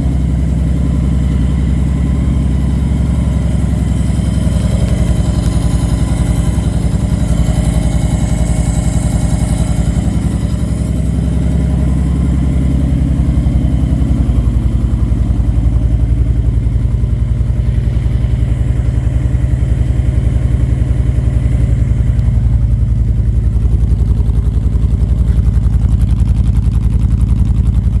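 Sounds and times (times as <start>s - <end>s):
motorcycle engine idling: 0.0s - 28.0s.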